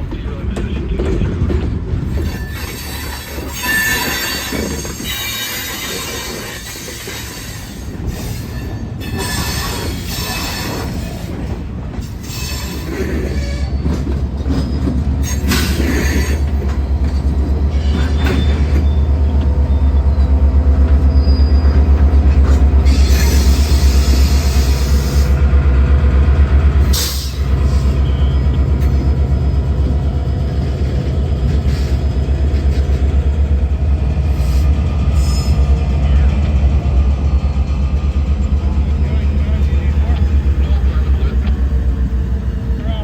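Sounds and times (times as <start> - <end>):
wheels squealing and hissing: 2.2 - 11.4, 12.1 - 13.9, 14.6 - 16.8, 21.0 - 21.8, 22.8 - 25.3, 34.3 - 35.8
locomotive engine throb: 13.2 - 43.0.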